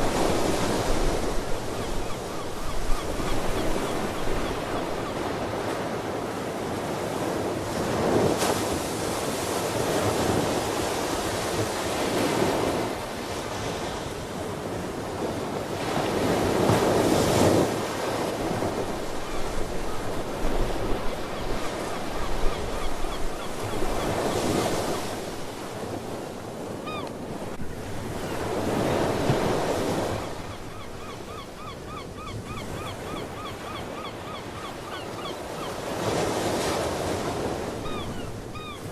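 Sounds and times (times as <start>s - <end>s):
waves breaking and washing in: 0.0s - 38.9s
seabird calls: 0.1s - 5.8s, 19.0s - 25.6s, 26.8s - 27.4s, 28.2s - 38.9s.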